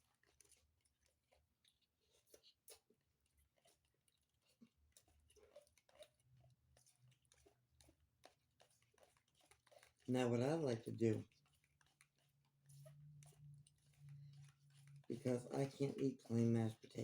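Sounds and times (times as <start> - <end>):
faint small clicks and taps: 0.0 - 10.1.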